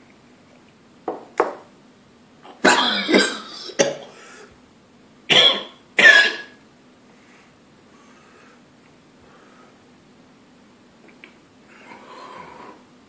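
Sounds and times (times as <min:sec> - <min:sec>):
man coughing: 0:02.6 - 0:04.1, 0:05.3 - 0:06.6.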